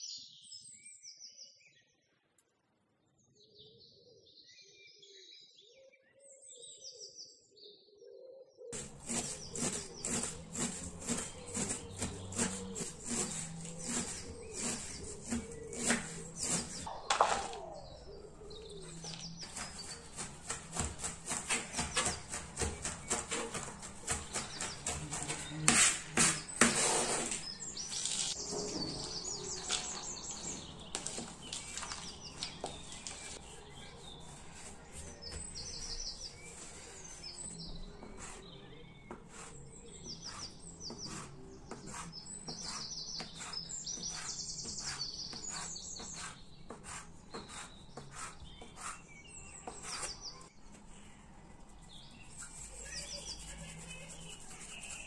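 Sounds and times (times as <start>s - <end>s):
small birds chirping and trilling: 0.0s - 2.3s, 3.0s - 55.0s
sharp knocks and taps: 19.0s - 26.8s.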